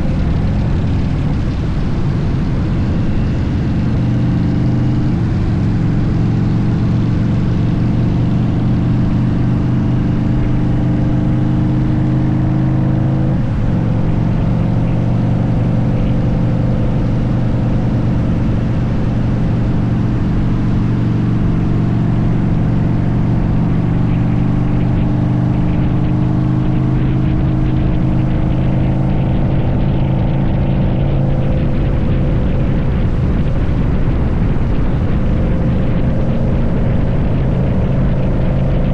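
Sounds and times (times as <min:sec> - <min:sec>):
motorcycle engine running: 0:00.0 - 0:38.9
wind rushing: 0:13.3 - 0:38.9.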